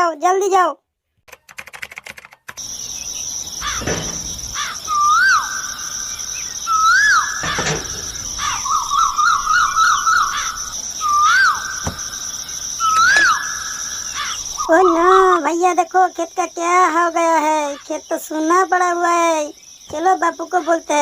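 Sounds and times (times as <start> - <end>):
birds calling: 2.5 - 15.7
high-pitched insect drone: 2.6 - 21.0
swooping whistled bird calls: 2.9 - 15.5
harsh crow-like calls: 3.6 - 6.0, 6.7 - 14.7
fast bird trill: 3.6 - 15.4.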